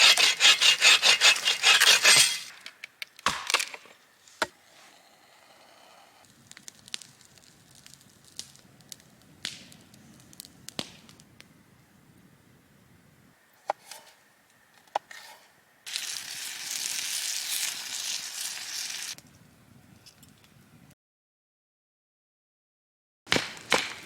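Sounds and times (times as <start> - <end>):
dry wood cracking and snapping: 6.3 - 11.3.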